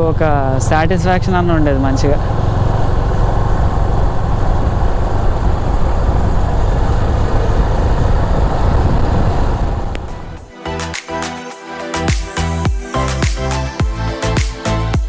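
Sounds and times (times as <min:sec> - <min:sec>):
motorcycle running: 0:00.0 - 0:10.5
wind rushing on microphone: 0:00.0 - 0:10.5
music: 0:10.2 - 0:15.0.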